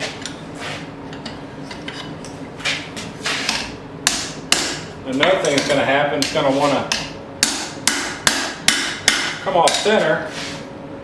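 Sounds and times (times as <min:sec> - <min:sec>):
steady hum: 0:00.0 - 0:11.0
hammer striking hot steel: 0:03.5 - 0:10.0.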